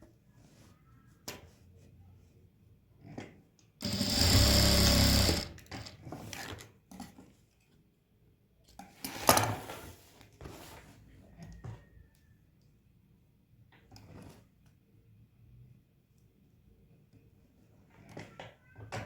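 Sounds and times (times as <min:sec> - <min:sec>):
sewing machine stitching: 0:03.8 - 0:06.2.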